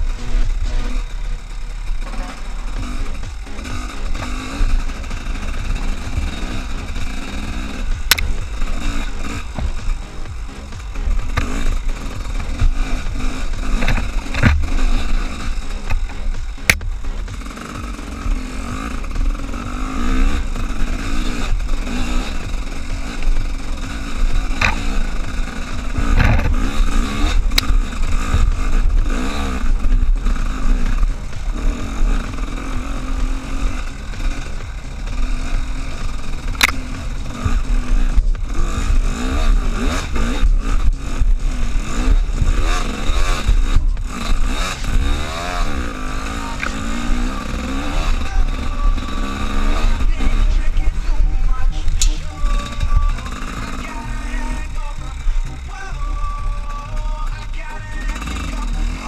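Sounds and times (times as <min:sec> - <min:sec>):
vehicle engine revving: 0:00.0 - 0:59.0.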